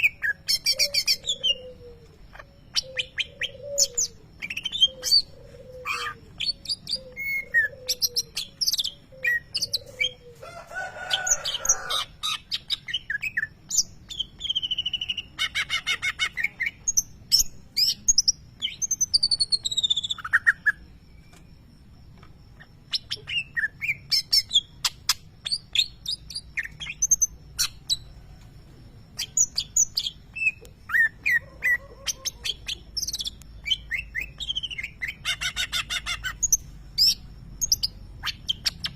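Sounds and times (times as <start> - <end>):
bird singing chirps and trills: 0.0 - 10.4, 11.4 - 21.6, 22.5 - 28.2, 29.1 - 38.9.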